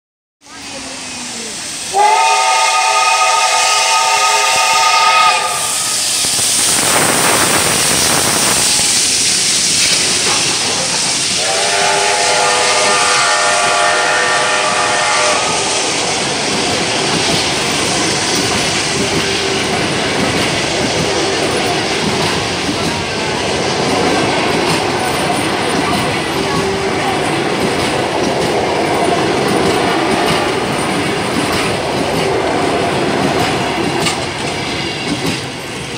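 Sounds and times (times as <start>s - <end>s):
train coaches rumbling and clattering: 0.4s - 35.9s
steam locomotive whistle: 1.8s - 6.5s, 11.2s - 16.3s.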